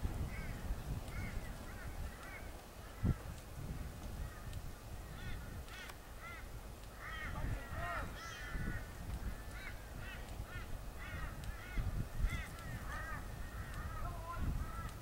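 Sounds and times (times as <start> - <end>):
birds honking calls: 4.2 - 15.0.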